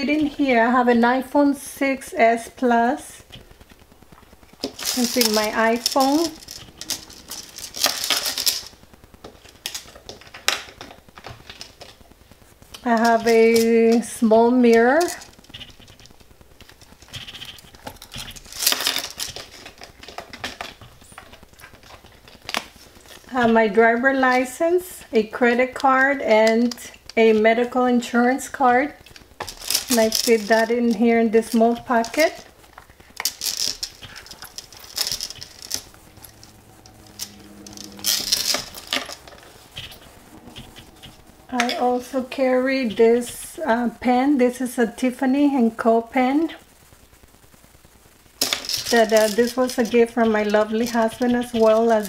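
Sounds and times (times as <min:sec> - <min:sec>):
bag rustling: 0:03.3 - 0:10.1, 0:29.1 - 0:43.2
clicks and rustling of bag: 0:29.1 - 0:30.7, 0:31.9 - 0:35.9.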